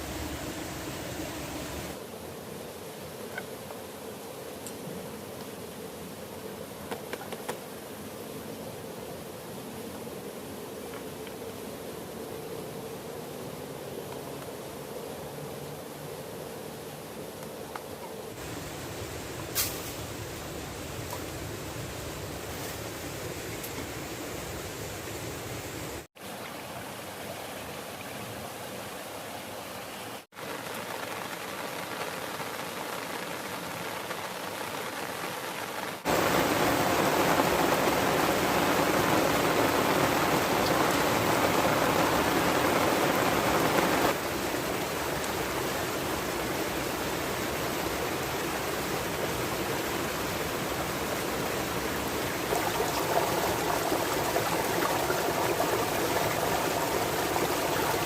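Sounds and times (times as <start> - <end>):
heavy rain: 0.0 - 2.0, 18.3 - 26.1, 30.3 - 58.0
river rushing: 36.0 - 58.0.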